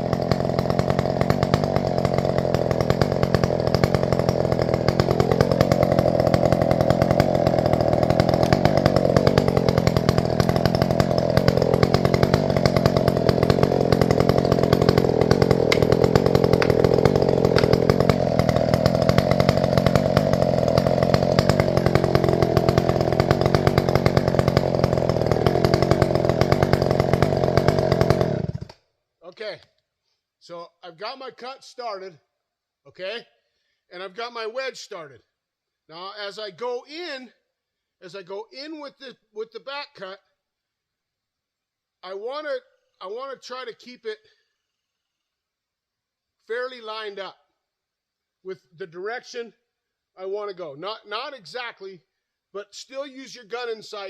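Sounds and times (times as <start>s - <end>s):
chainsaw cutting wood: 0.0s - 28.9s.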